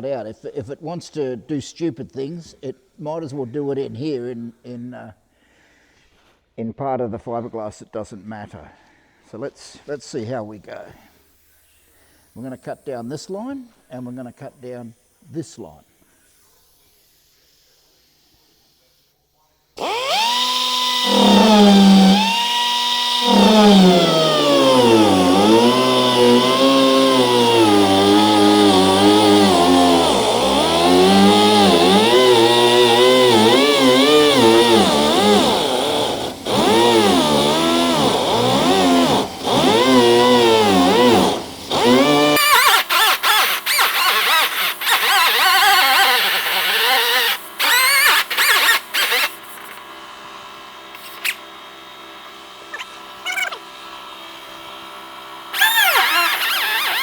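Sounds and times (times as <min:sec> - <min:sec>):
die grinder cutting fiberglass: 0:19.8 - 0:49.9, 0:50.9 - 0:51.6, 0:52.6 - 0:57.0.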